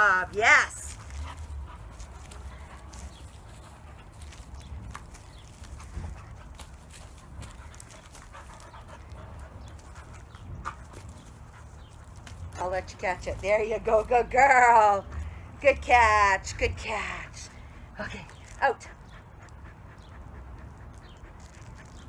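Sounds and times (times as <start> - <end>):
puppy panting: 0.8 - 12.7, 18.3 - 22.0.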